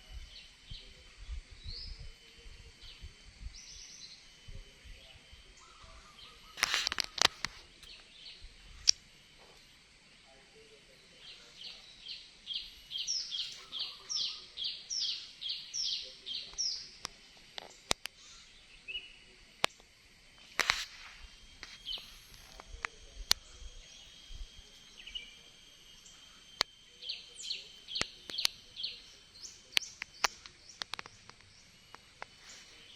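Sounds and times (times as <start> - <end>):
songbird singing: 0.0 - 32.9
sharp clicks: 6.2 - 8.2, 14.9 - 18.4, 19.6 - 32.9.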